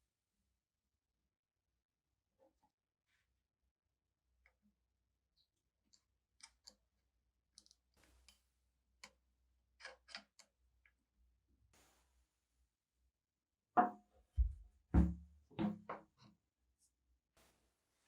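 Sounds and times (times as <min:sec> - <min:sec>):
faint small clicks: 0:05.9 - 0:06.8, 0:07.6 - 0:08.4, 0:09.8 - 0:11.0.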